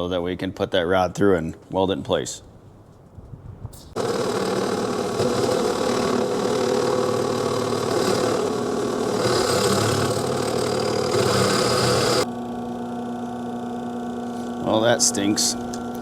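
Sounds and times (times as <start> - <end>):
electric drill grinding into steel: 4.0 - 12.3
drill motor humming freely: 4.0 - 16.0.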